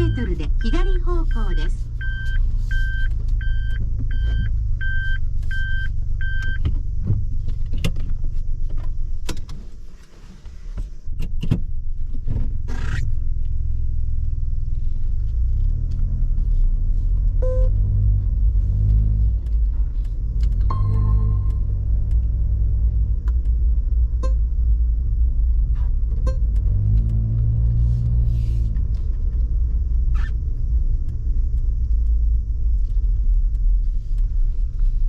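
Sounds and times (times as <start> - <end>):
engine and road noise: 0.0 - 35.0
repeating electronic beep: 20.7 - 21.9.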